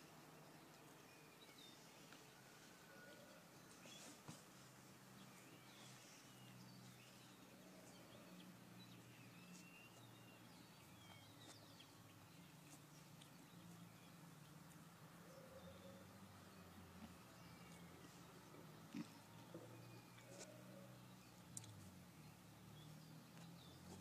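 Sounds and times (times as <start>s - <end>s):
faint bird chirps: 0.0s - 14.6s, 15.2s - 24.0s.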